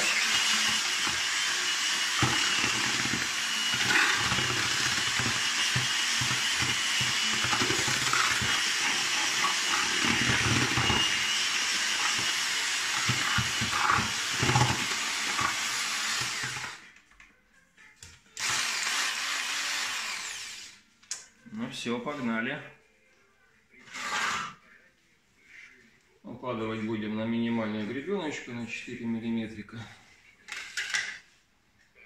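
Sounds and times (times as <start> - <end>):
drill with paddle mixer churning: 0.0 - 16.8, 18.4 - 20.8, 23.8 - 24.6.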